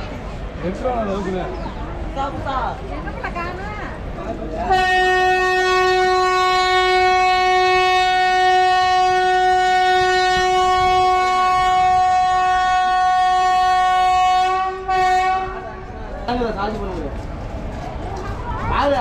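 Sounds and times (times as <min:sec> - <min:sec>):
train horn blasts: 0:04.6 - 0:16.0.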